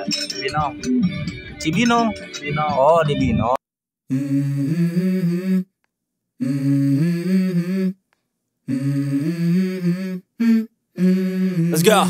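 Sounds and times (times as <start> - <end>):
hummed vocal melody: 4.1 - 5.8, 6.4 - 8.0, 8.6 - 12.0.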